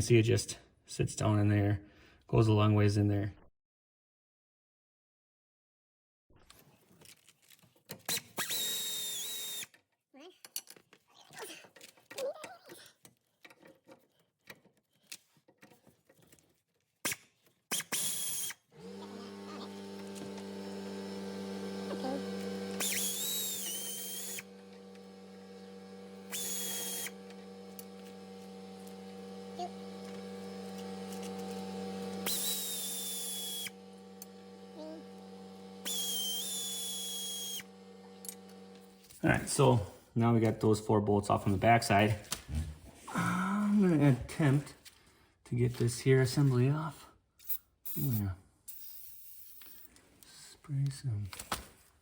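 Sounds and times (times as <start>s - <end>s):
power tool whirring: 8.0s - 9.8s, 17.7s - 40.2s, 47.4s - 50.0s.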